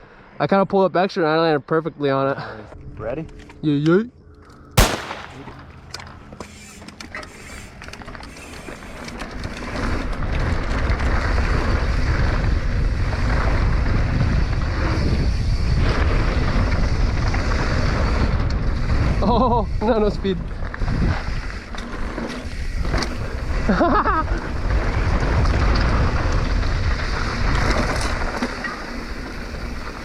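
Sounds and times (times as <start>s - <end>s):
bike rattles and ticks: 5.8s - 30.0s
wind rushing on microphone: 9.9s - 21.8s, 22.4s - 30.0s.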